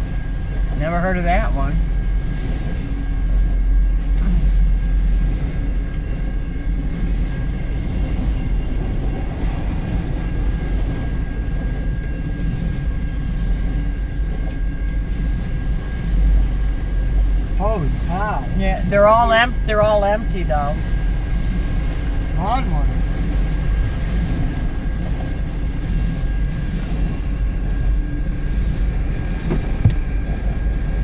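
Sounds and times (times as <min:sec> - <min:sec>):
freight cars rumbling on rails: 0:00.0 - 0:31.0.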